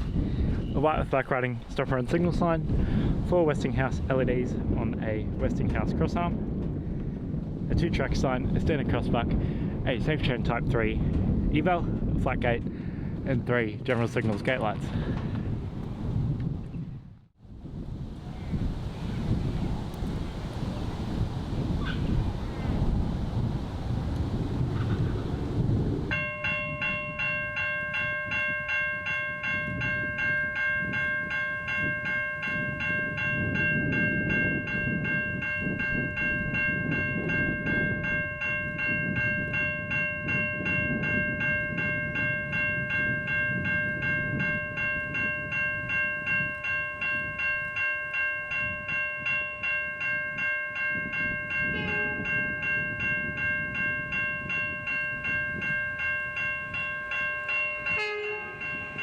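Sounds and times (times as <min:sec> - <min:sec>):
level crossing bells ringing: 0:26.1 - 0:59.0.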